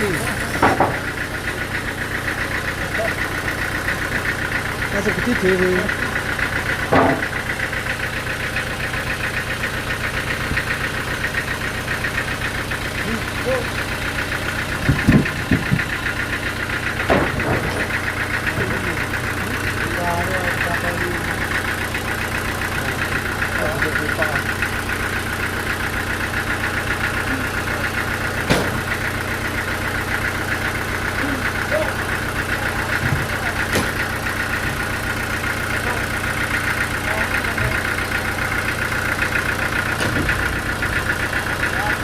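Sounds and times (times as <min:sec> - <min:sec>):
engine running with rapid pulsing: 0:00.0 - 0:42.0
sawmill machinery droning: 0:00.0 - 0:42.0
sharp knock: 0:28.5 - 0:28.8.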